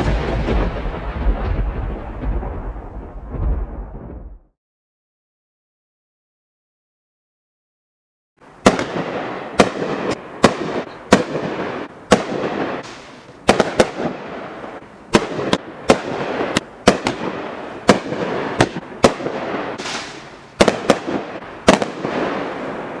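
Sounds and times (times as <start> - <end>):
fireworks bangs: 0.0 - 4.4, 8.6 - 23.0
crackling hiss: 19.5 - 20.6.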